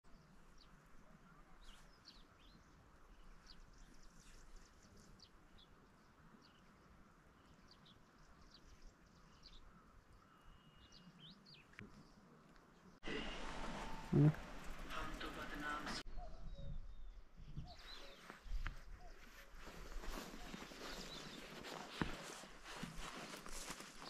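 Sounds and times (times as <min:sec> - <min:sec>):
faint songbird chirps: 0:00.1 - 0:13.0, 0:16.0 - 0:24.0.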